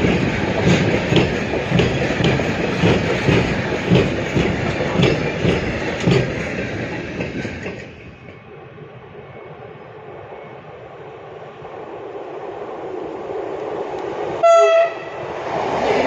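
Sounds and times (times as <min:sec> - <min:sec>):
train wheels clickety-clack: 0:00.0 - 0:08.5.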